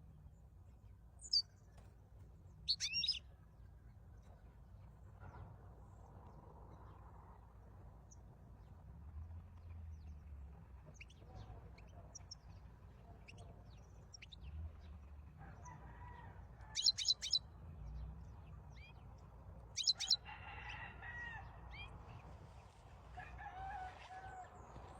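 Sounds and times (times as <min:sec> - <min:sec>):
goldfinch twittering: 0:02.7 - 0:03.2.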